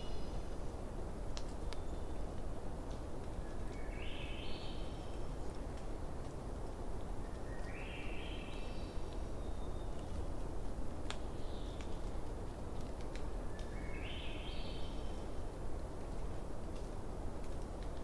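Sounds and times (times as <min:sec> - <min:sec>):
campfire crackling and popping: 0:01.2 - 0:03.4, 0:09.0 - 0:13.8, 0:14.9 - 0:18.0
bird singing: 0:03.5 - 0:05.2, 0:07.4 - 0:10.0, 0:13.6 - 0:15.2.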